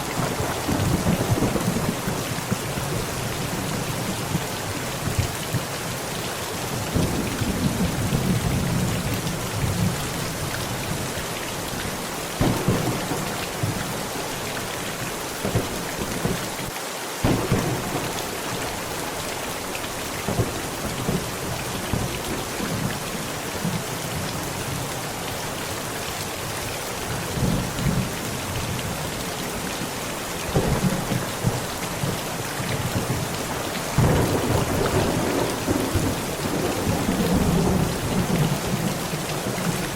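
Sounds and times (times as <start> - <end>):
thunder rumbling: 0.0 - 4.4, 12.4 - 16.6, 17.2 - 19.0, 30.5 - 39.9
heavy rain on a tent: 0.0 - 39.9.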